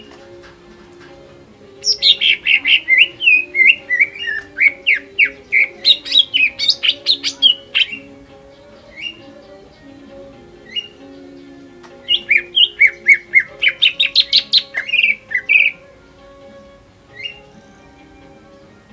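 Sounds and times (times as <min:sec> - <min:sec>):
bird chirping and whistling: 0:01.8 - 0:09.9, 0:10.6 - 0:15.8, 0:17.1 - 0:17.6.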